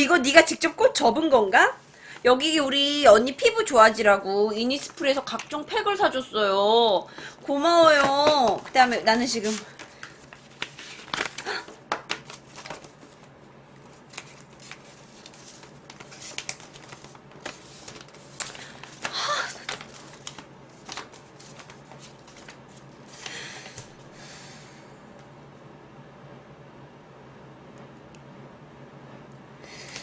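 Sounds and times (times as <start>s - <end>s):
packaging rustling and clicking: 7.2s - 24.0s.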